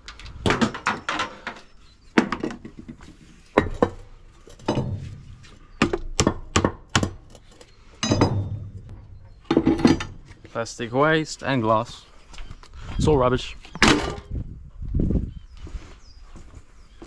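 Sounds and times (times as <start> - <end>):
hard parts knocking and clattering: 0.0 - 10.5.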